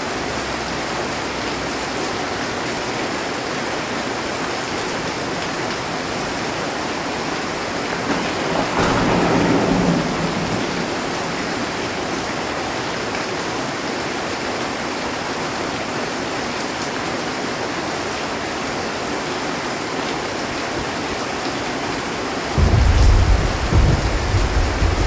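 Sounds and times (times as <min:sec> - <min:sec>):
heavy rain on a metal roof: 0:00.0 - 0:25.0
thunder rumble: 0:05.0 - 0:13.5, 0:22.4 - 0:25.0.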